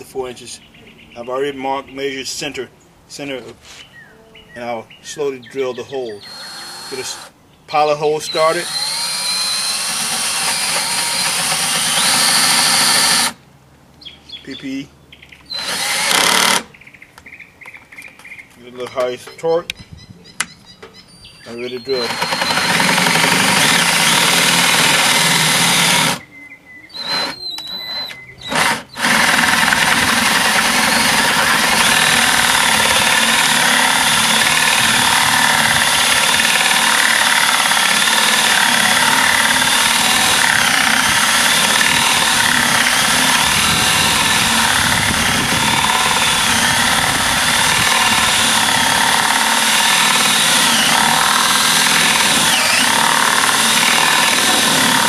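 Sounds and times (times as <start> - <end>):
power drill boring through wood: 6.2 - 7.3, 8.2 - 13.4, 15.5 - 16.7, 21.7 - 26.2, 27.0 - 55.0.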